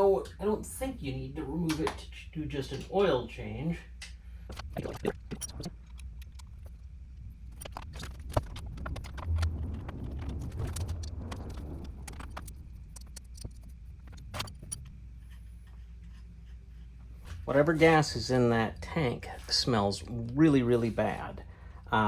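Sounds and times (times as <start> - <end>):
low rumble: 4.6 - 22.0.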